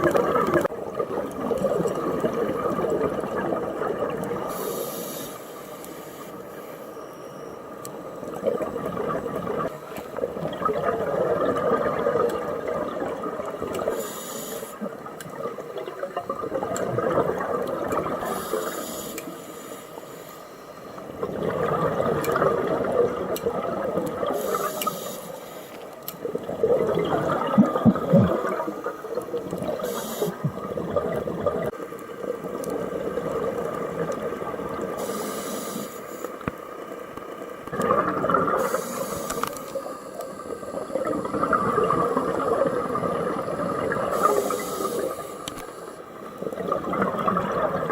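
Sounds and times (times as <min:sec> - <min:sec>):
gurgling exhaled bubbles: 0:00.0 - 0:04.7, 0:08.3 - 0:14.0, 0:14.8 - 0:18.8, 0:21.0 - 0:24.9, 0:26.2 - 0:35.1, 0:37.6 - 0:45.3, 0:46.2 - 0:47.9
regulator inhalation hiss: 0:04.5 - 0:06.9, 0:13.9 - 0:14.8, 0:18.2 - 0:20.8, 0:24.3 - 0:25.8, 0:29.8 - 0:30.5, 0:35.0 - 0:36.4, 0:38.6 - 0:40.8, 0:44.1 - 0:46.0.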